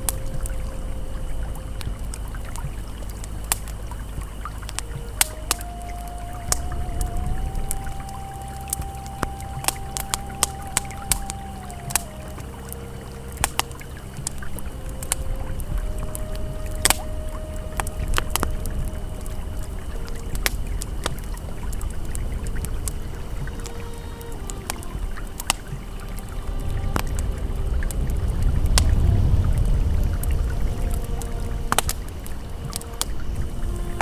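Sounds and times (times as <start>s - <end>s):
campfire crackling: 0.0s - 34.0s
held ambient tones: 0.0s - 34.0s
river flowing: 0.0s - 34.0s.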